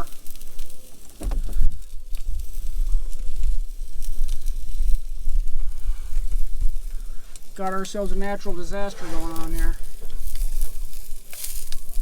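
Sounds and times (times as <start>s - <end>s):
frying pan crackles: 0.0s - 12.0s
wind rumble on microphone: 0.0s - 12.0s
door squeak: 1.2s - 1.7s.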